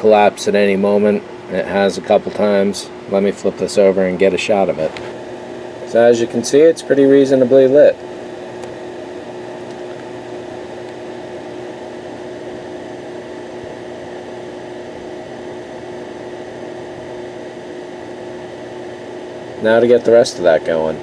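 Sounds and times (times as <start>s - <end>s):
constant hiss: 0.0s - 12.7s
steady machine hum: 0.0s - 21.0s.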